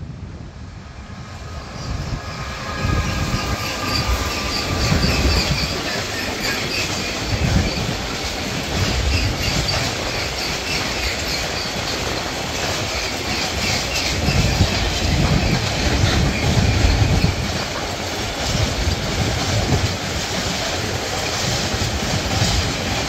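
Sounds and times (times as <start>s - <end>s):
electric locomotive whine: 0.0s - 23.0s
freight train rolling by: 0.0s - 23.0s
high wheel squeal: 1.4s - 17.6s.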